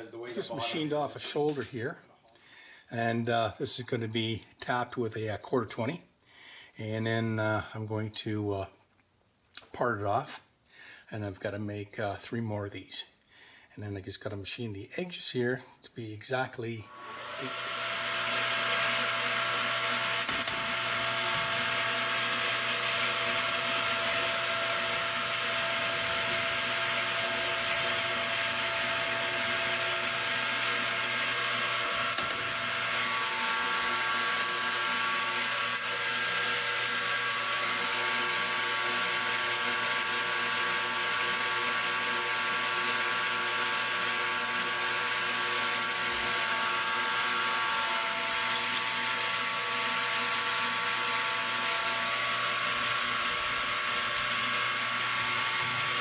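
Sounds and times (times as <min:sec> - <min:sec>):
metal lathe humming: 0:16.9 - 0:56.0.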